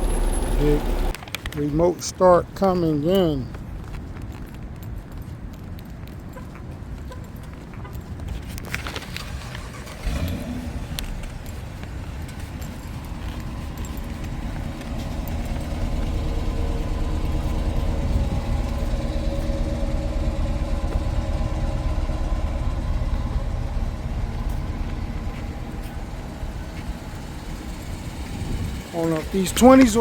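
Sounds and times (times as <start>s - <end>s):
car engine idling: 0.0s - 1.2s, 8.9s - 30.0s.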